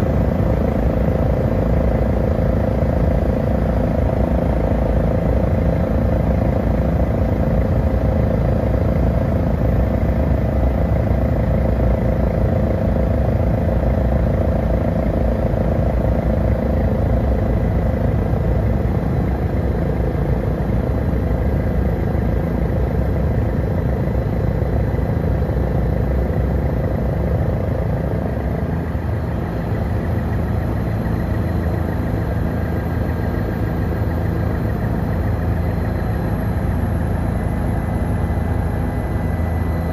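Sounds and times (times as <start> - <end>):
helicopter turbine and rotor drone: 0.0 - 39.9.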